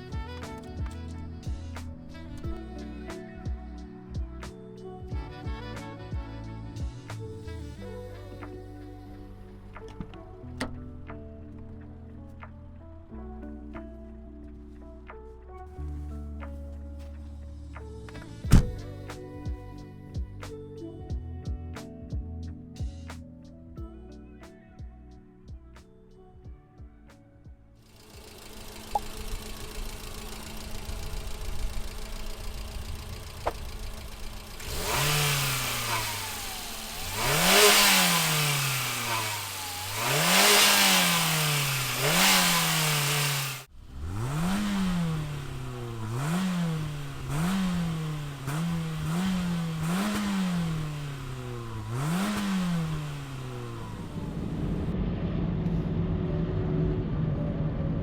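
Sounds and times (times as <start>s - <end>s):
car engine idling and revving: 16.5s - 20.5s, 27.9s - 58.0s.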